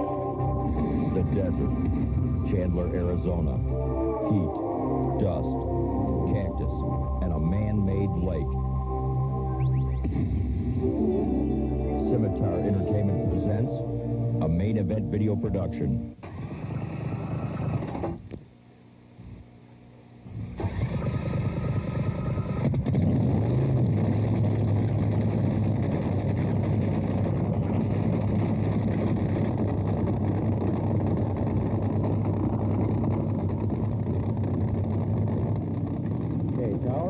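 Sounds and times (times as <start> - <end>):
boat engine droning: 0.0 - 18.2, 20.4 - 37.0
high whine: 0.0 - 37.0.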